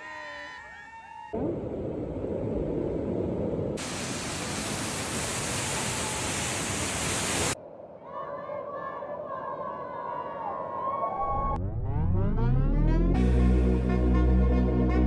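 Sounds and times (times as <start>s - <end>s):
waterfall roaring: 3.8s - 7.6s.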